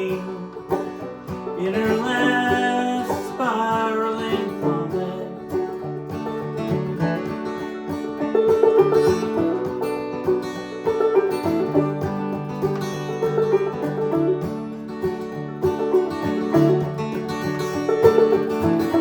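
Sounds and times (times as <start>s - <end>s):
plucked string melody: 0.0s - 19.0s.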